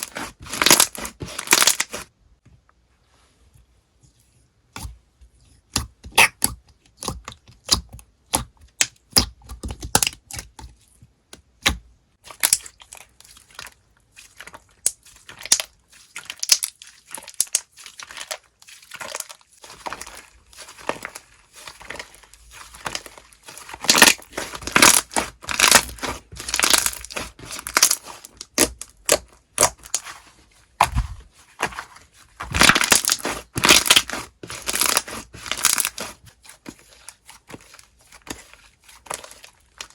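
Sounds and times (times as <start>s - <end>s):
slime squished by hand: 0.0s - 2.1s, 11.4s - 39.9s.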